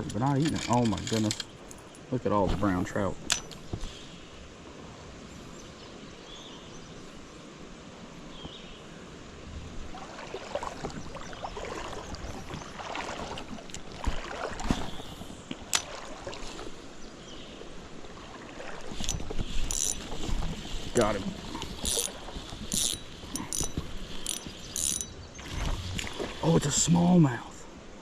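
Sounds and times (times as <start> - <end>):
creek water running: 0.0 - 6.2, 6.9 - 28.0
rustling and knocking: 21.6 - 25.0.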